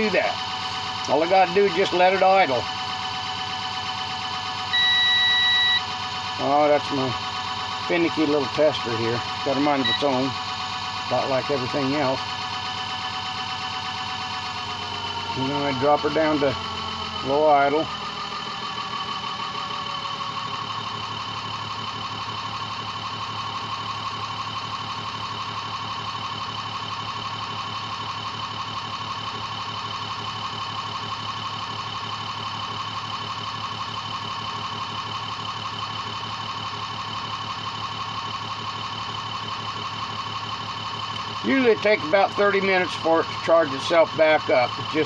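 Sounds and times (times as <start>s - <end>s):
electric motor whine: 4.7s - 5.9s.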